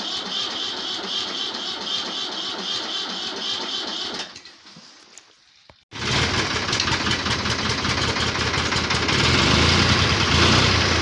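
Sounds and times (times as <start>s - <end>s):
tractor engine running: 0.0s - 4.4s, 6.0s - 11.0s.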